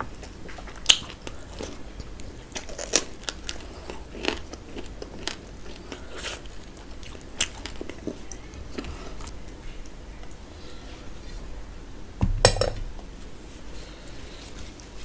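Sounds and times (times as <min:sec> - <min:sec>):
chewing and smacking mouth sounds: 0:00.0 - 0:10.4.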